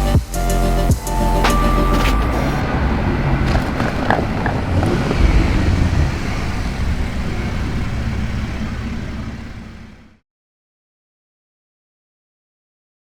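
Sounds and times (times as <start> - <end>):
car engine low rumble: 0.0 - 10.2.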